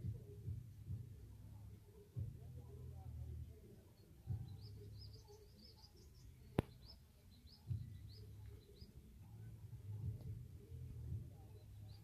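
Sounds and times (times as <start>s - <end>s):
small bird chirping: 3.8s - 9.5s.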